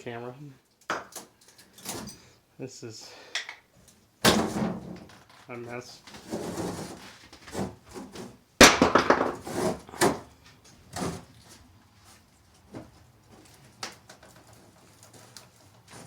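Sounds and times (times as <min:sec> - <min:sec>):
building material clattering: 0:06.1 - 0:10.3
knocks of debris being moved: 0:06.1 - 0:10.3.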